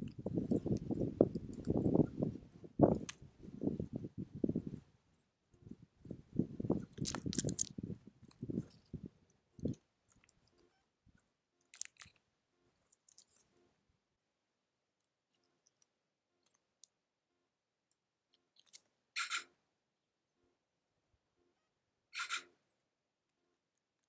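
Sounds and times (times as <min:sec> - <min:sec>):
animals feeding clicks and crunches: 0:00.0 - 0:01.9, 0:02.8 - 0:03.2, 0:06.8 - 0:13.7, 0:15.3 - 0:17.0, 0:18.3 - 0:19.5
short scrape: 0:22.2 - 0:22.6.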